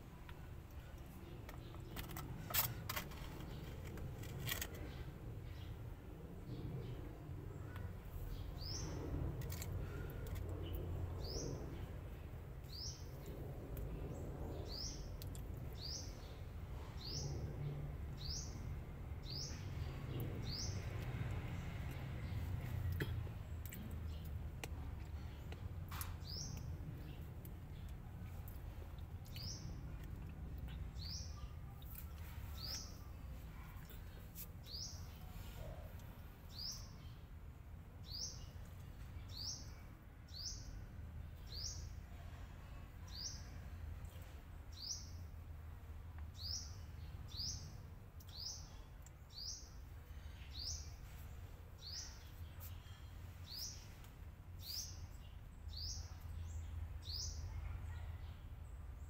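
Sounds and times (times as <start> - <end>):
low steady rumble: 0.0 - 39.2.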